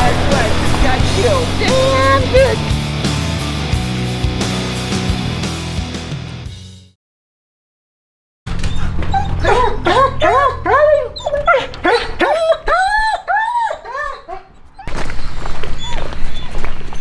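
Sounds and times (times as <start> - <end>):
low rumble: 0.0 - 4.1
dog barking rapidly: 9.1 - 13.2.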